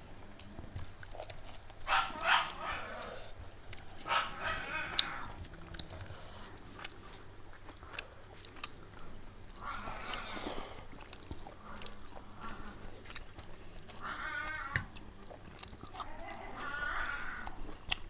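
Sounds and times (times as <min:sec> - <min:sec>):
person chewing food: 0:00.2 - 0:18.0
hissy mouth sound: 0:09.9 - 0:10.9.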